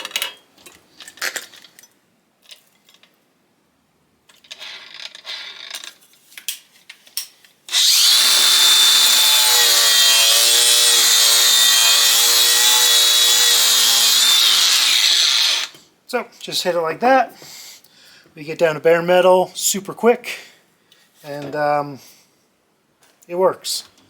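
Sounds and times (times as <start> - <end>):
grinder whining hum: 7.7 - 15.8.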